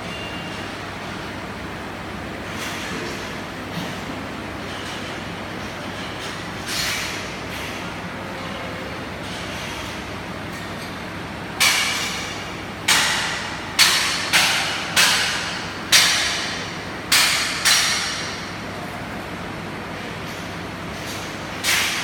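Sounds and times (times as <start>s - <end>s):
steady background noise: 0.0s - 22.0s
hammer striking metal: 11.6s - 18.5s.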